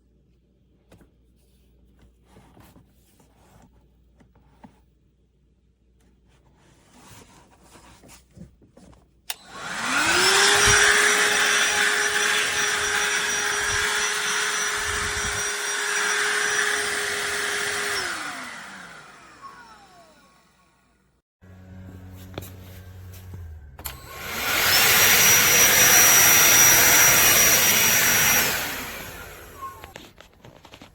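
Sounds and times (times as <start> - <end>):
handheld vacuum motor whining: 9.3 - 20.7, 23.8 - 30.9.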